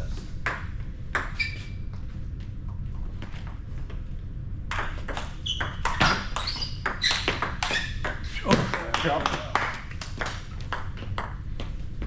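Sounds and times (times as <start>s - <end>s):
table tennis ball hits: 0.4s - 1.4s, 4.7s - 11.5s.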